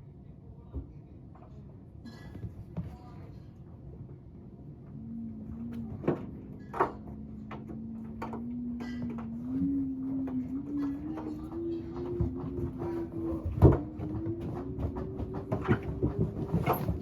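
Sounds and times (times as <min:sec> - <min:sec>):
washing machine motor whine: 0:04.3 - 0:17.0.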